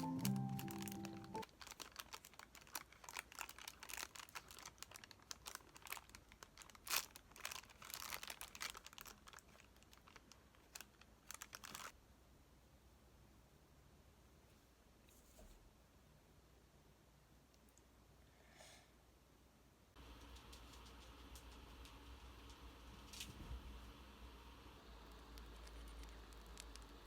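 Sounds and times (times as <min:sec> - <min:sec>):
piano music: 0:00.0 - 0:01.4
small objects clicking and crinkling: 0:00.0 - 0:11.9, 0:25.1 - 0:27.0.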